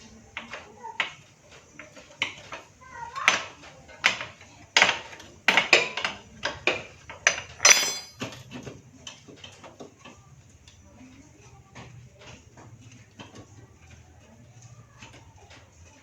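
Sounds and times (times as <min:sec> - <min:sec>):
metal tools clinking on engine parts: 0:07.3 - 0:08.6
sharp metallic knocks: 0:07.6 - 0:08.4.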